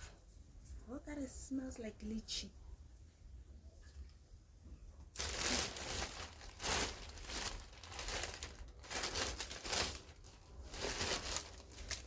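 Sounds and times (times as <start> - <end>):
packaging crinkling: 5.1 - 12.0.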